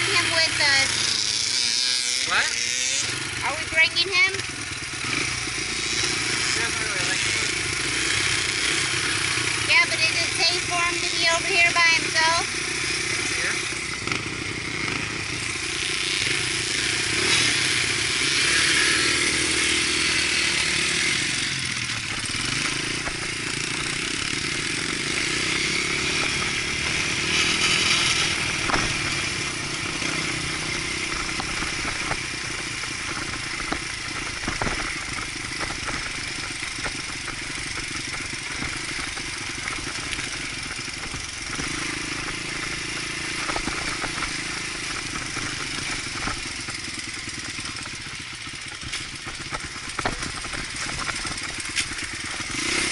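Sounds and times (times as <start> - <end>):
dirt bike engine running: 0.0 - 52.9
sharp knocks and clatter: 28.5 - 29.2, 33.0 - 48.1, 48.7 - 52.8.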